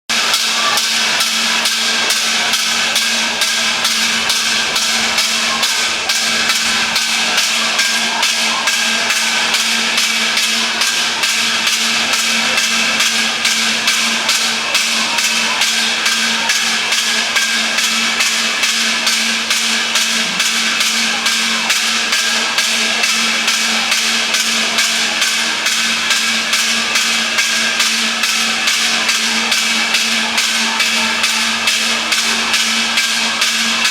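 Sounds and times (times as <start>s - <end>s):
rapid repeated striking: 0.1s - 33.9s
constant hum: 1.0s - 16.8s.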